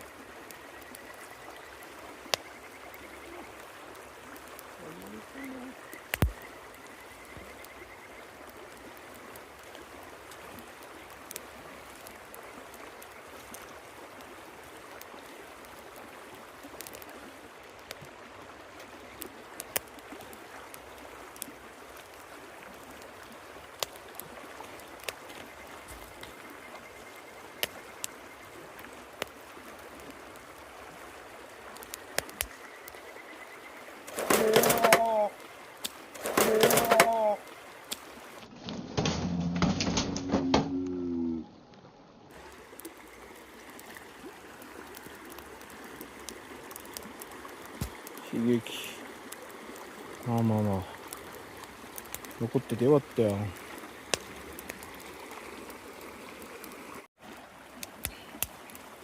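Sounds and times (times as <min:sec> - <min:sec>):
campfire clicks and crackles: 0:00.0 - 0:41.0, 0:42.3 - 0:59.0
river water running: 0:00.0 - 0:59.0
dove cooing: 0:34.2 - 0:35.5.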